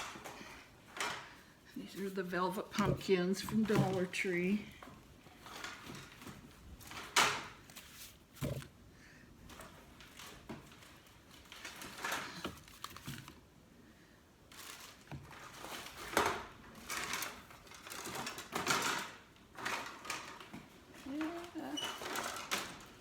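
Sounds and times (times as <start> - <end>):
hands rustling craft materials: 0.0 - 8.8, 9.5 - 13.5.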